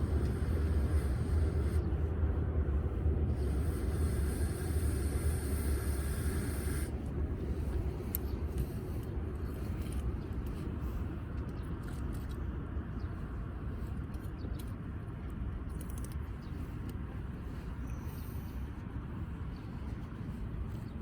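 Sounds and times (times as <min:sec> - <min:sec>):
hiss: 0:00.0 - 0:01.9, 0:03.3 - 0:07.0
wind rumble on microphone: 0:00.0 - 0:21.0.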